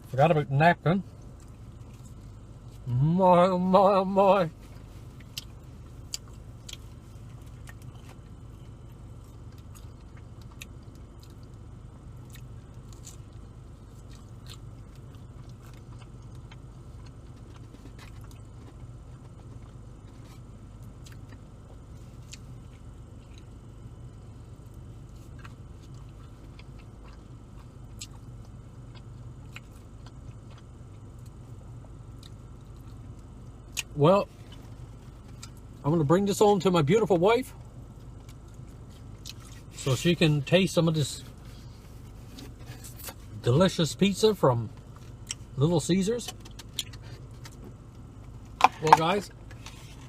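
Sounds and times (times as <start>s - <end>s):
steady low hum: 0.0s - 50.0s
man chewing food: 1.1s - 3.0s, 4.6s - 35.8s, 37.6s - 39.8s, 46.3s - 50.0s.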